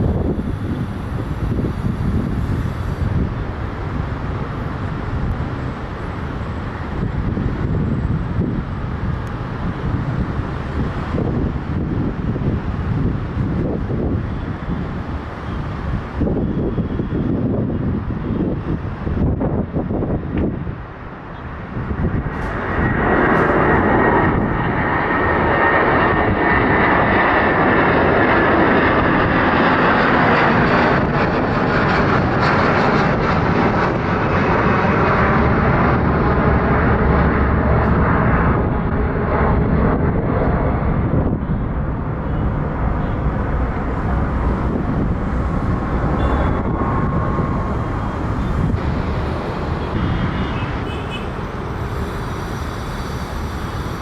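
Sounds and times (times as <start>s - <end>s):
jet engines roaring: 0.0s - 54.0s
faint whine: 41.3s - 54.0s.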